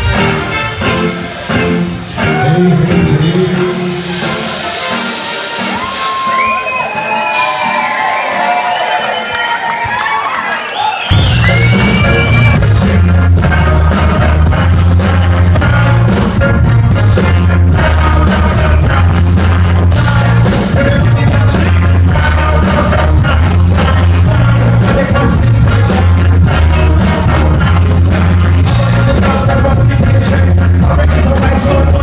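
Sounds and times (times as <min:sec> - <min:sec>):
heavy bass: 0:00.0 - 0:04.9, 0:11.1 - 0:32.0
live band playing ska music: 0:00.0 - 0:08.5, 0:11.0 - 0:32.0
person singing: 0:01.5 - 0:04.7, 0:11.4 - 0:32.0
steady drum beat: 0:11.1 - 0:32.0.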